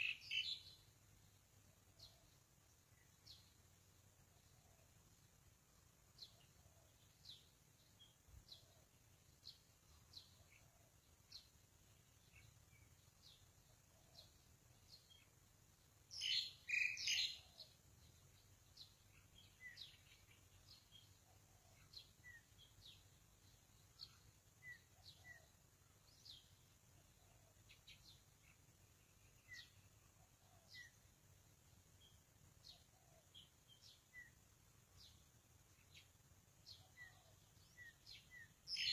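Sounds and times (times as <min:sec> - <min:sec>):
bird chirps: 0:00.0 - 0:03.6, 0:06.1 - 0:38.9.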